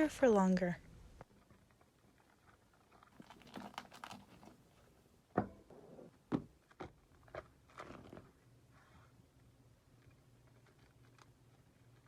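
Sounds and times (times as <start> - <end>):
wax wrap crinkling and rustling: 1.2 - 4.8, 6.6 - 8.8.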